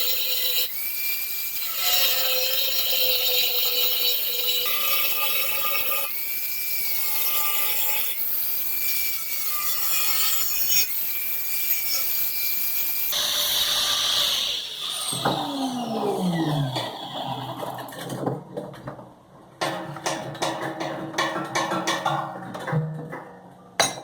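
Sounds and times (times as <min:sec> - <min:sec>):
angle grinder cutting metal: 0:00.0 - 0:17.9
grinder winding down: 0:13.2 - 0:18.0.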